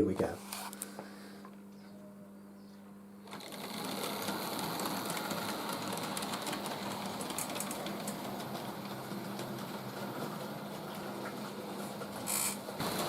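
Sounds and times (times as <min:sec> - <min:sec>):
electric motor whir: 0:03.3 - 0:08.2, 0:12.2 - 0:13.0
wheel and gear rattle: 0:03.3 - 0:13.0.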